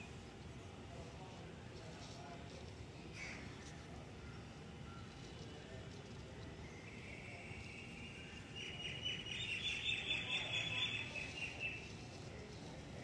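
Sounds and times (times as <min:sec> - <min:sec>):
faint background hum: 0:00.0 - 0:13.0
bird chirping in a fast trill: 0:06.7 - 0:11.8.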